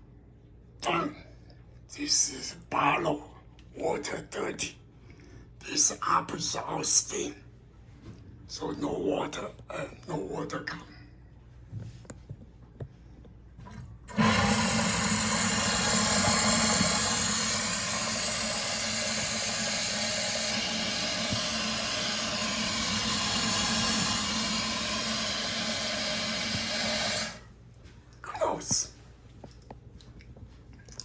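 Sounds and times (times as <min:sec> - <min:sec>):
steam hissing from drain valve: 0:14.1 - 0:27.4.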